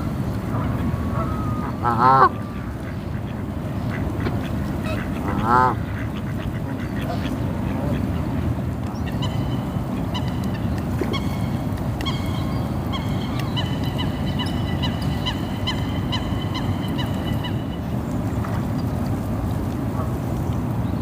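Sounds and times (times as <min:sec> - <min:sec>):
low background noise: 0:00.0 - 0:21.0
geese honking: 0:00.6 - 0:08.2, 0:09.0 - 0:17.8.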